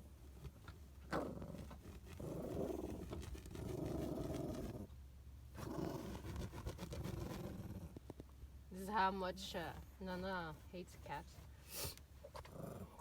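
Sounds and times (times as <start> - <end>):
small dog growling: 1.1 - 4.9, 5.6 - 8.1, 12.3 - 13.0.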